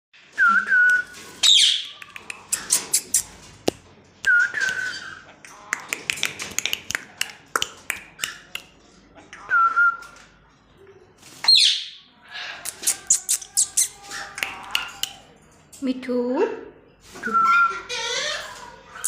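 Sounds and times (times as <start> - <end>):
parrot clicks and chirps: 1.5 - 3.3, 12.6 - 15.3
parrot screech: 12.4 - 15.0, 17.5 - 19.0.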